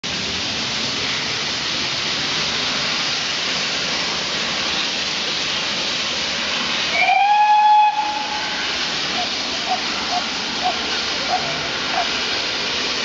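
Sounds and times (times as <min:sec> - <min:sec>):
steam hissing: 0:00.0 - 0:13.0
steam whistle: 0:06.9 - 0:12.1.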